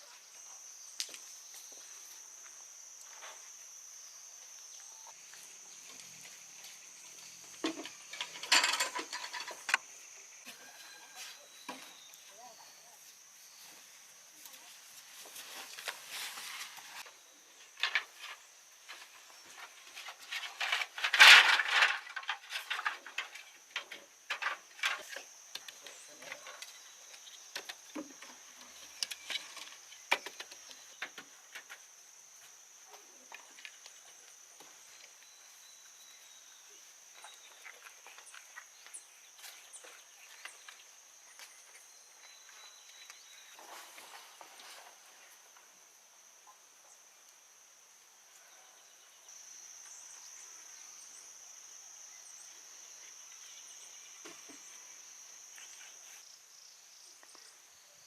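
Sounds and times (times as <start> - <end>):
insects droning: 0.0 - 58.0
clicks and rustling: 7.6 - 9.8.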